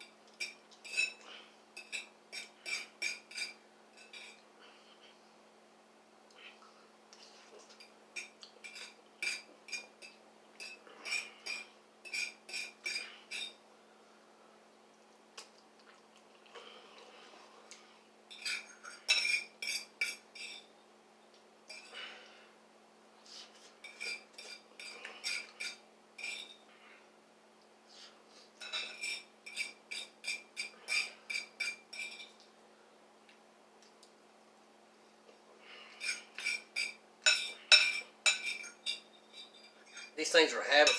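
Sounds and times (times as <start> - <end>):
metal utensil clinking on bowl: 18.3 - 20.7, 36.0 - 40.9.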